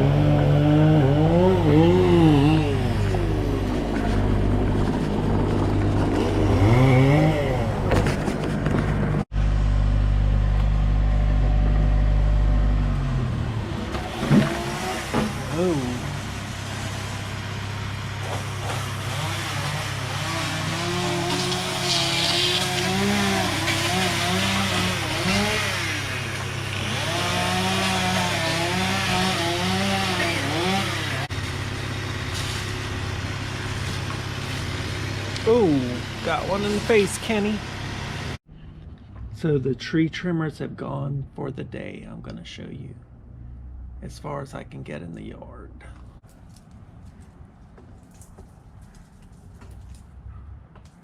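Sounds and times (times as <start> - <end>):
chainsaw cutting wood: 0.0 - 8.5, 13.8 - 38.4
tractor diesel engine running: 1.2 - 21.1, 30.3 - 38.4.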